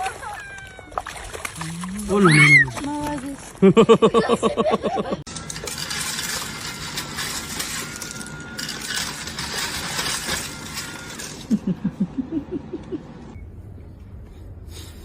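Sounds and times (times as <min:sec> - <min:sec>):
small hard objects rattling: 0:05.3 - 0:11.6.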